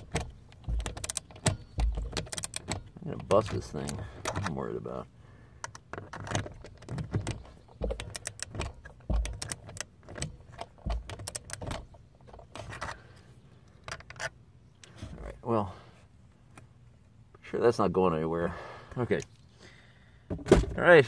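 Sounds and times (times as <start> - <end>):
dull knocks: 0.0 - 3.4, 6.9 - 9.6
ratchet clicking and rattling: 0.0 - 4.6, 5.6 - 13.0.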